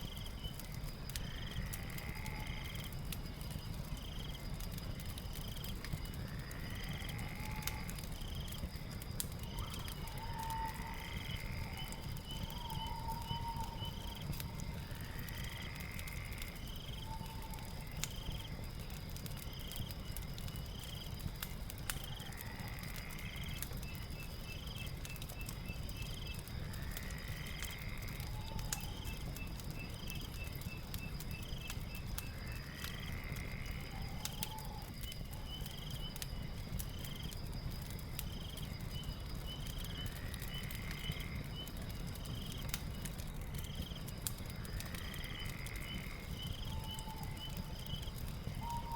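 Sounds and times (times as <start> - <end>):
fire crackling: 0.0 - 48.9
high insect drone: 1.2 - 2.9, 6.2 - 8.5, 32.3 - 34.8.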